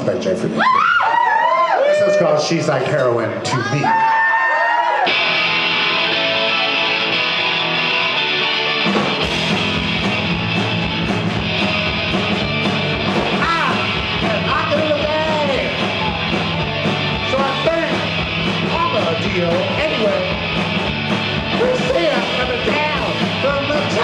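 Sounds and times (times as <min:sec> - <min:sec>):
live rock band playing: 0:05.0 - 0:24.0
electric guitar chord ringing: 0:05.1 - 0:13.2.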